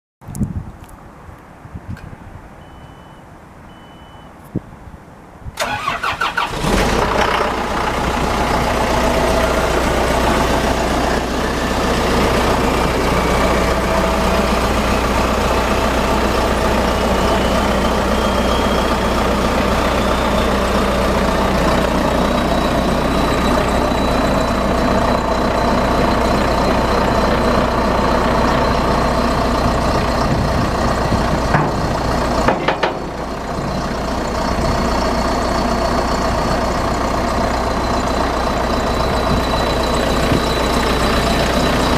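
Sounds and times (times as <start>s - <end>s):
warning beeps: 2.6s - 4.4s, 15.6s - 29.0s
diesel engine idling: 5.6s - 41.9s
starter cranking diesel engine: 5.6s - 41.9s
high machine whine: 7.4s - 41.9s.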